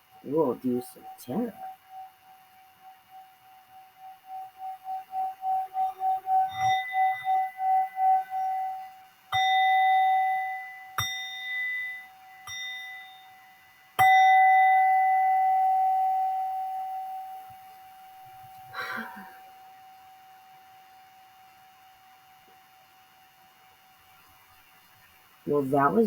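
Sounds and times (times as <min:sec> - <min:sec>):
singing bowl pulsing tone: 0:00.0 - 0:22.4
singing bowl strikes ringing: 0:04.0 - 0:18.4.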